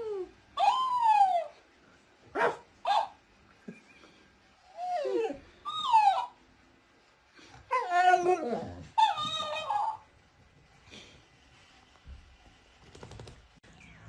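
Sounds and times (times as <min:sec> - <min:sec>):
dog whining and howling: 0:00.0 - 0:01.6, 0:04.6 - 0:06.4, 0:07.6 - 0:10.1.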